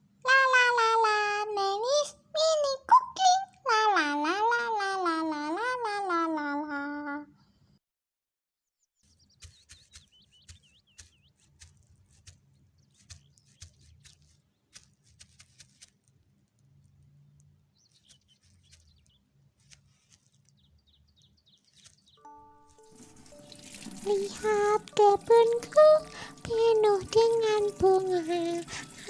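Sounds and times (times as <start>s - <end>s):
faint birds chirping: 8.9s - 29.0s.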